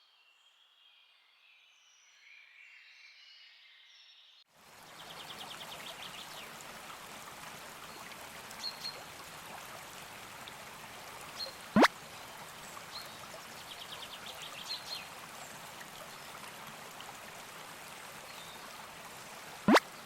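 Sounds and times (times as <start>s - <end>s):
river water flowing: 4.5s - 20.0s.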